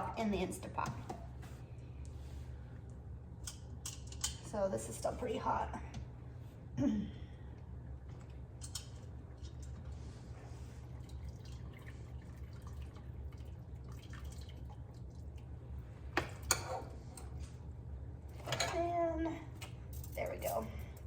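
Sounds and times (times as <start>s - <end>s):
steady low hum: 0.0s - 21.0s
wet drips and squishes: 10.9s - 15.5s.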